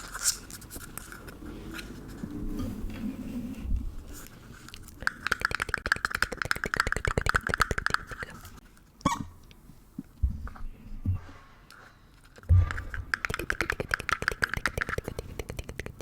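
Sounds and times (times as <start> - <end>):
soft crackling rustle: 0.0 - 5.1
fast sharp clicks: 4.8 - 8.5, 12.5 - 16.0.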